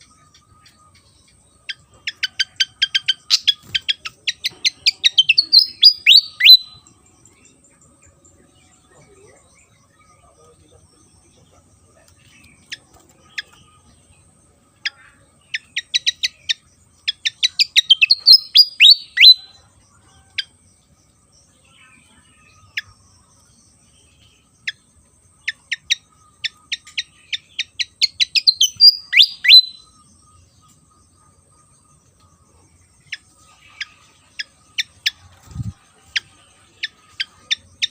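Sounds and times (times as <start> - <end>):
bird song with chips and whistles: 0.0 - 7.1, 14.8 - 20.6, 25.4 - 30.9.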